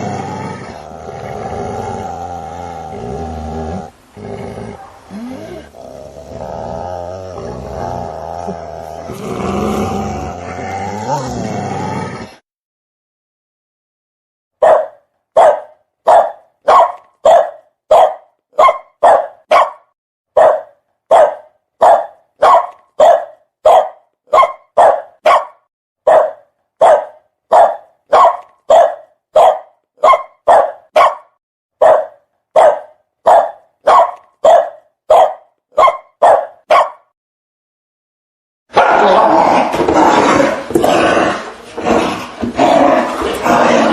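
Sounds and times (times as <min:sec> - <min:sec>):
dog barking: 0:04.7 - 0:05.1, 0:14.6 - 0:37.1.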